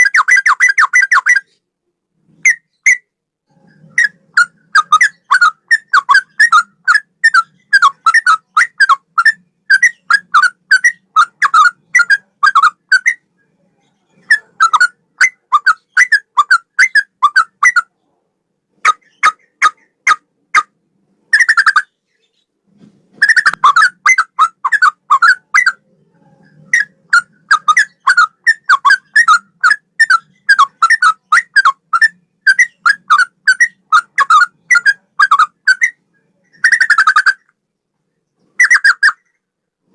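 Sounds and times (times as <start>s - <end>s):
bird singing whistled notes: 26.5s - 37.5s.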